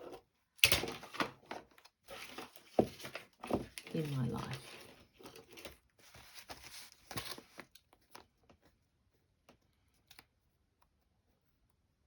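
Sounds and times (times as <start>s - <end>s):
paper rustling: 1.1s - 8.9s.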